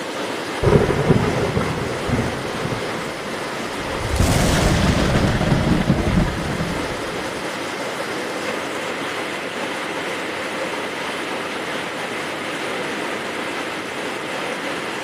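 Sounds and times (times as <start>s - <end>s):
heavy rain: 0.0s - 15.0s
thunder rumble: 0.6s - 7.4s.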